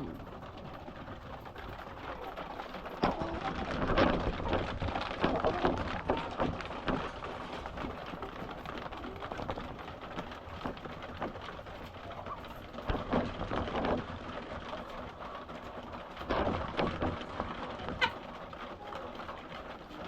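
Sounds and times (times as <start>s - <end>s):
steady patter: 0.0s - 20.0s
hens clucking: 6.9s - 13.0s, 17.7s - 20.0s.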